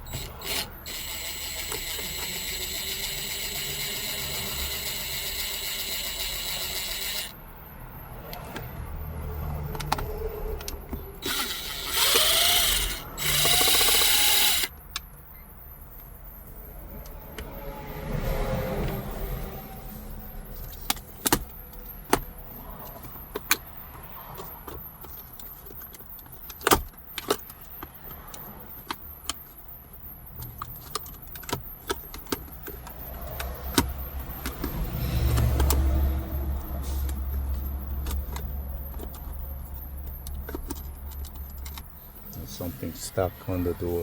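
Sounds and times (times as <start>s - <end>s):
hands working on dashboard trim: 9.6s - 15.1s, 20.5s - 29.7s, 30.3s - 44.0s.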